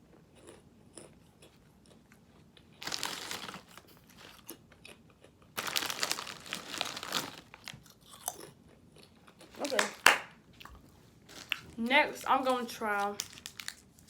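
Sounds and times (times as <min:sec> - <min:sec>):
chip packet crunching and crinkling: 0:02.6 - 0:10.3, 0:11.3 - 0:14.0.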